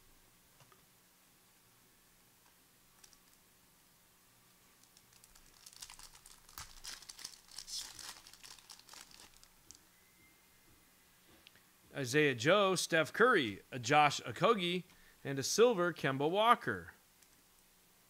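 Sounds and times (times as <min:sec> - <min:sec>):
card pack wrapper tearing and crinkling: 0:04.8 - 0:09.8.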